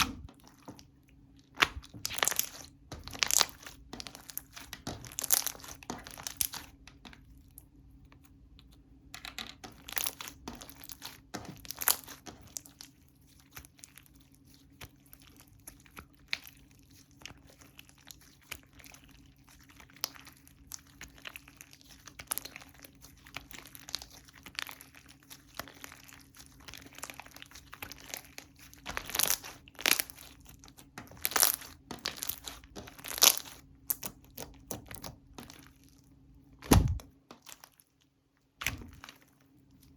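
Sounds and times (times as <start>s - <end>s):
slime squishing with clicks: 0.0s - 39.9s
slime pops: 36.6s - 37.1s.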